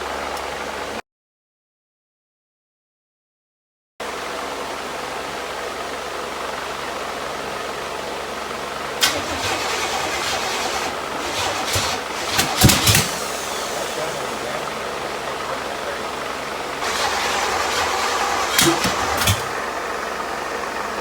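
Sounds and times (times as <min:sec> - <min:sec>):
vehicle running with rushing noise: 0:04.0 - 0:21.0
clicks: 0:09.0 - 0:14.0, 0:16.8 - 0:19.6.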